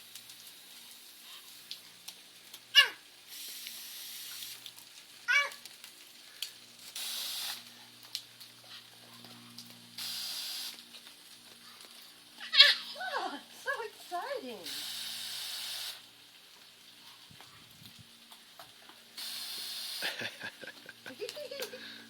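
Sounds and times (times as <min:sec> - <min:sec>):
water running from a tap: 0:13.1 - 0:16.2.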